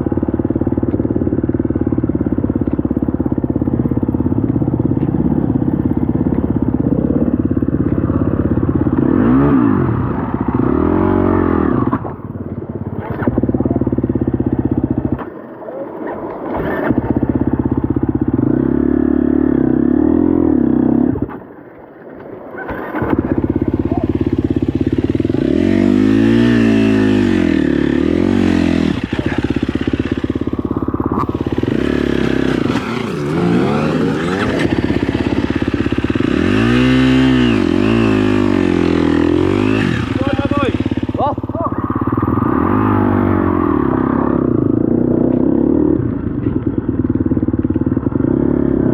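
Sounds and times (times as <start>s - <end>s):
dirt bike engine revving: 4.8s - 12.3s, 16.5s - 21.4s, 22.7s - 46.1s.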